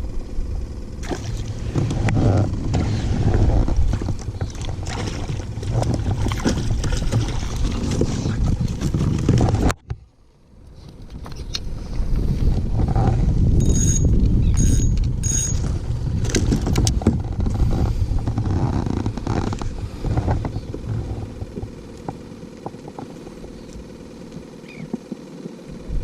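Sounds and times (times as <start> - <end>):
loud low rumble: 0.0 - 9.2
short high electronic beeps: 13.6 - 15.6.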